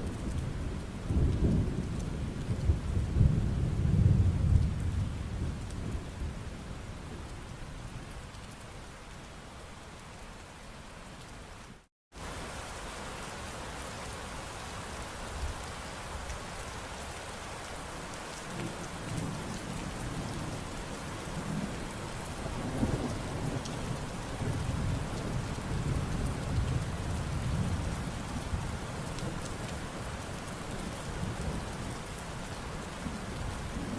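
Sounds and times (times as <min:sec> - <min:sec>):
low rolling thunder: 0:00.0 - 0:07.3, 0:18.5 - 0:30.0, 0:33.0 - 0:33.9
steady rain falling: 0:00.0 - 0:33.9.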